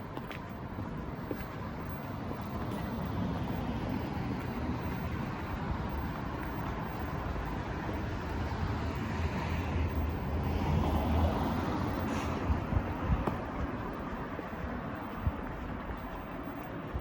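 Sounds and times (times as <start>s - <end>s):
traffic rumble: 0.0s - 17.0s
vehicle passing: 6.9s - 14.0s.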